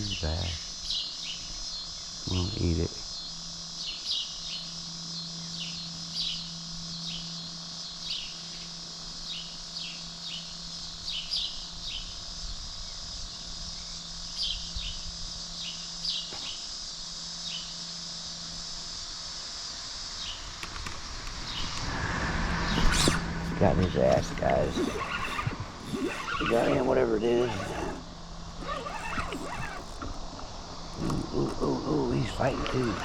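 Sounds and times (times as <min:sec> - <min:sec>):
steady high hiss: 0:00.0 - 0:33.0
small animals chirping: 0:24.5 - 0:30.1, 0:30.9 - 0:33.0.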